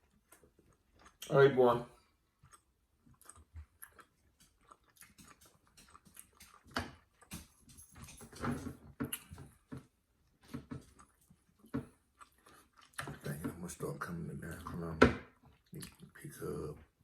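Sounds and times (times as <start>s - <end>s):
people eating: 11.7s - 16.8s.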